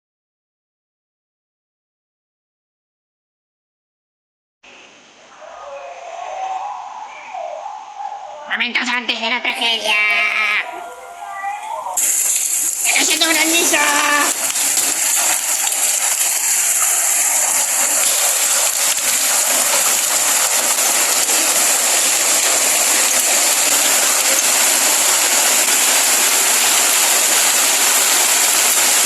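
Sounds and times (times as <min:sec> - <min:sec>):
hail and heavy rain falling: 0:12.0 - 0:29.0.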